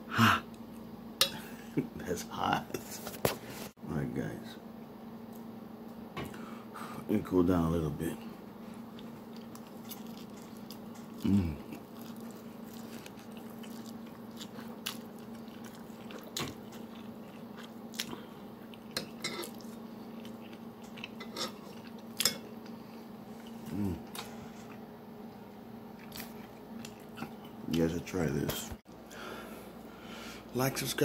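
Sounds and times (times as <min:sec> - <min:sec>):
man chewing noodles: 0:08.8 - 0:24.9, 0:25.9 - 0:27.6
low throat hums: 0:11.1 - 0:11.8, 0:23.6 - 0:24.1.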